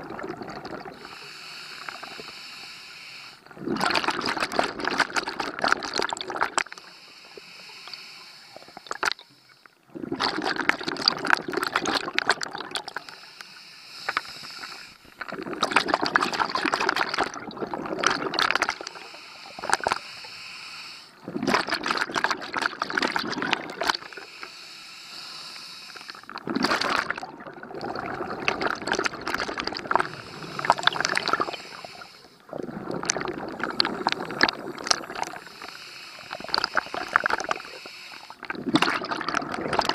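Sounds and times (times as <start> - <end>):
exhaust bubbles bubbling: 0.0 - 1.1, 9.9 - 12.9, 15.2 - 18.9, 21.2 - 24.2, 26.4 - 31.6, 32.4 - 35.5, 38.4 - 39.9
regulator inhale hiss: 1.0 - 3.4, 6.7 - 9.8, 12.9 - 15.2, 18.8 - 21.2, 24.1 - 26.3, 30.0 - 32.5, 33.6 - 38.4.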